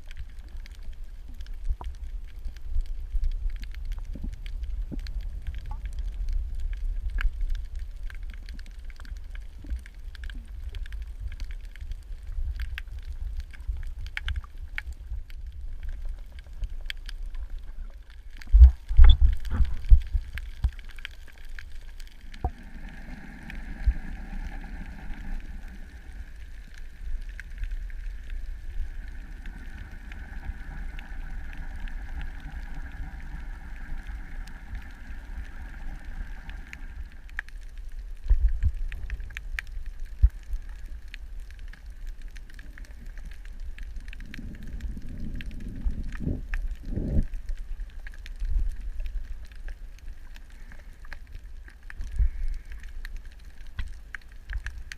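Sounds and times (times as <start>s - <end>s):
fine crackling clicks: 0.0s - 54.9s
underwater low rumble: 0.0s - 54.9s
steady droning hum: 20.1s - 38.2s.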